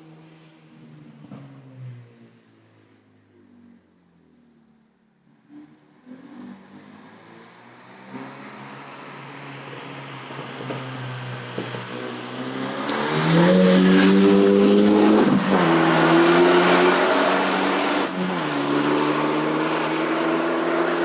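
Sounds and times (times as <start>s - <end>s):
car engine revving: 11.3s - 21.0s.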